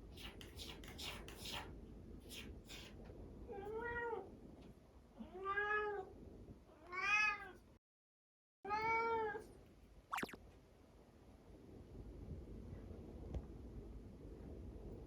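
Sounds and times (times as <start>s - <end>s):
cat meowing: 6.8s - 7.6s.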